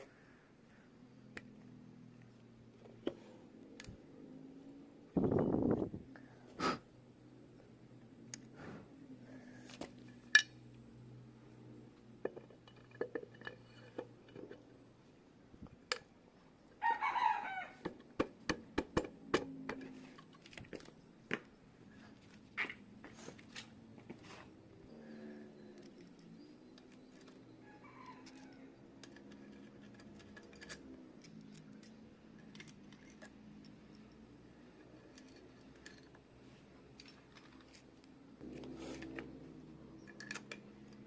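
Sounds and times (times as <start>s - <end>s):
metal tools clicking and clinking: 12.4s - 14.7s, 28.1s - 38.0s, 40.0s - 41.0s.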